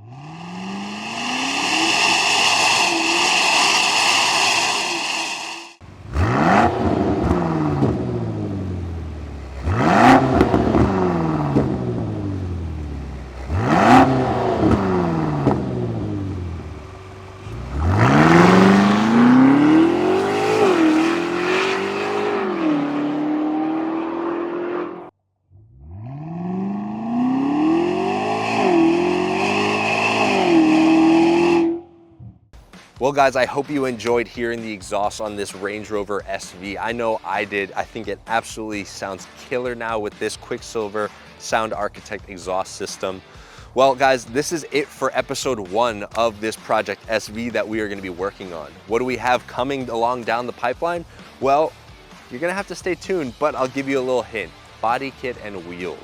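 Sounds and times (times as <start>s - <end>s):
car engine revving: 0.0s - 32.4s.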